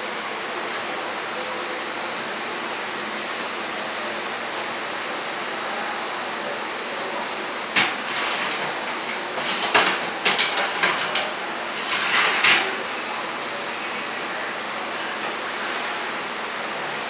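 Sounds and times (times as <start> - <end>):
objects knocking and clattering: 7.8 - 12.8.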